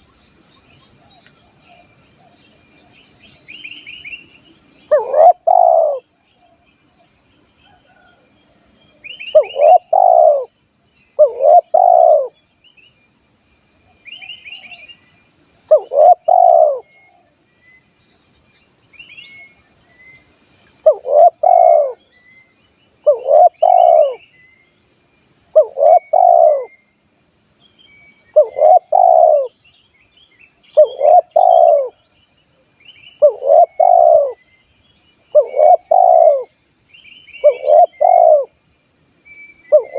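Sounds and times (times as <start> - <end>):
high insect drone: 0.0 - 39.9
small birds chirping: 0.0 - 39.9
dove cooing: 4.9 - 6.0, 9.3 - 10.5, 11.2 - 12.4, 15.7 - 17.3, 20.8 - 22.0, 23.0 - 24.2, 25.5 - 26.7, 28.4 - 29.6, 30.8 - 32.0, 33.2 - 34.4, 35.3 - 36.5, 37.4 - 38.6.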